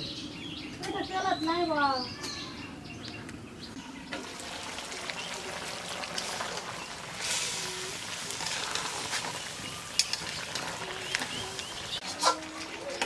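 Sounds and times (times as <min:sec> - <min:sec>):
curry sizzling in a pot: 0:04.1 - 0:13.0.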